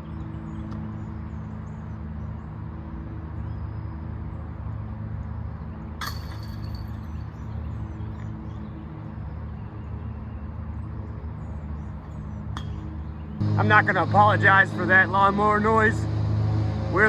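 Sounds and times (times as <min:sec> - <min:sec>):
disc striking basket chains: 0:06.0 - 0:07.2.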